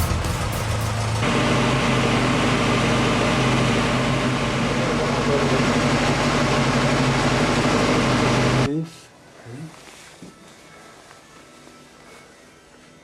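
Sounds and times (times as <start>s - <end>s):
car engine running steadily: 0.0s - 8.7s.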